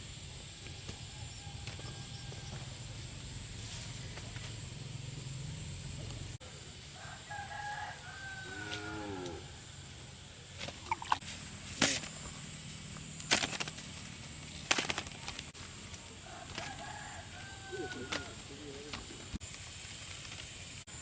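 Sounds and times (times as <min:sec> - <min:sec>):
rooster crowing: 0:01.0 - 0:02.9, 0:06.8 - 0:09.8, 0:16.1 - 0:18.9.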